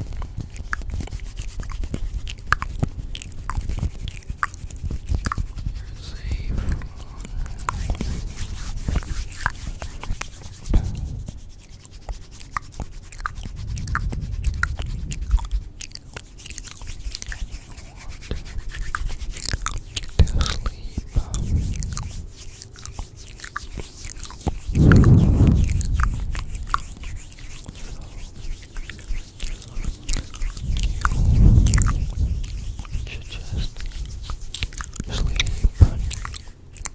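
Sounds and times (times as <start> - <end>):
low rumbling: 24.7 - 28.4, 29.7 - 33.6.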